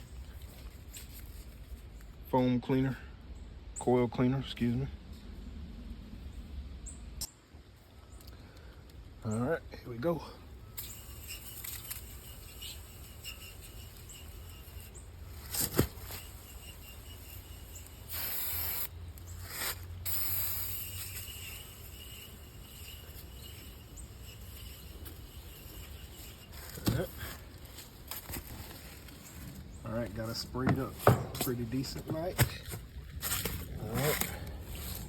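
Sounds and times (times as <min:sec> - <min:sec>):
aerosol can spraying: 0:10.8 - 0:15.0, 0:15.6 - 0:18.9, 0:19.5 - 0:26.9.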